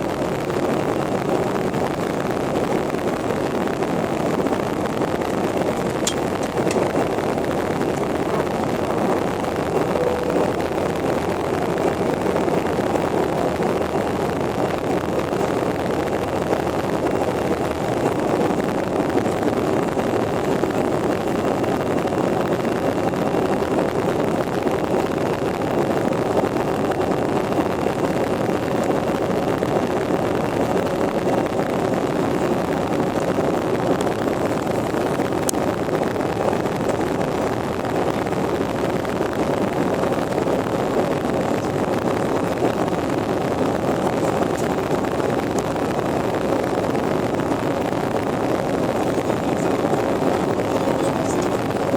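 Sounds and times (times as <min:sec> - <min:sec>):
jet engine roar: 0:03.4 - 0:19.2.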